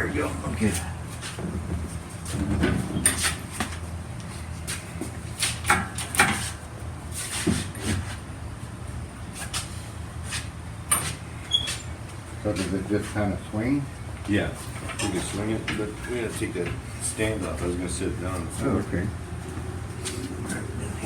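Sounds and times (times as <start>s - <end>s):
low steady hum: 8.2s - 21.0s.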